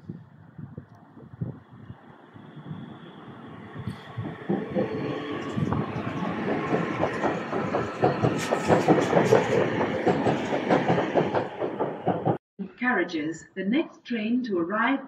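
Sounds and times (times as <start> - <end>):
train passing: 0.1 - 12.4
wheels clicking over rail joints: 3.8 - 12.4.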